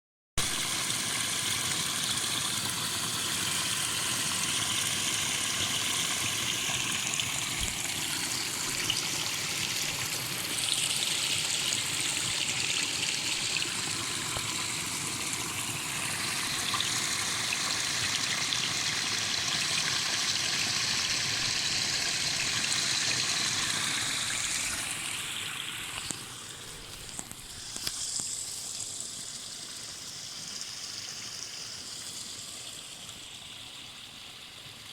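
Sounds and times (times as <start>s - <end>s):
spring water flowing and splashing: 0.4s - 34.9s.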